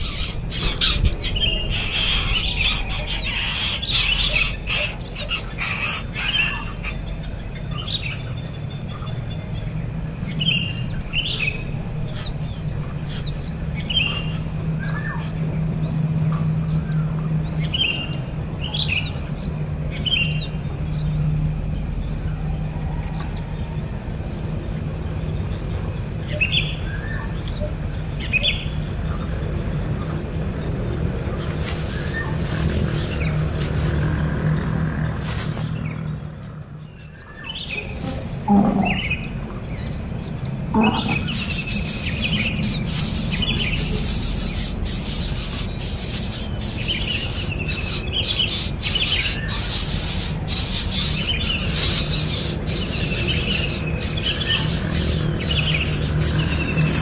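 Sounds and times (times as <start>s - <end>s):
birds chirping: 0.0s - 57.0s
high-pitched insect drone: 0.0s - 57.0s.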